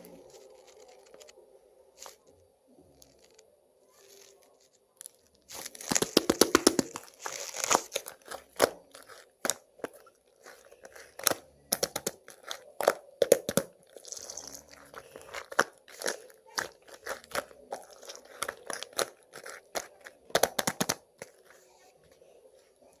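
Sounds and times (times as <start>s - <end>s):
sticky slime clicks and pops: 5.7s - 9.9s, 10.9s - 13.8s, 15.4s - 21.3s.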